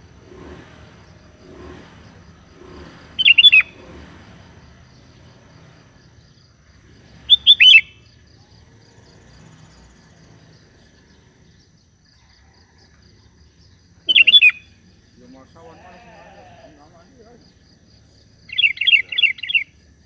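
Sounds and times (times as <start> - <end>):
bulbul calling: 1.5 - 6.3, 7.1 - 8.4, 14.0 - 17.7, 18.4 - 19.8.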